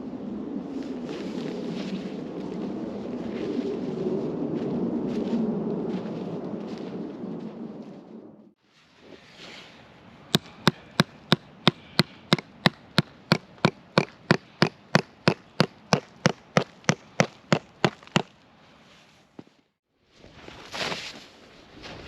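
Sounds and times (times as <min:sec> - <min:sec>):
sharp knocking strikes: 0:10.4 - 0:18.0.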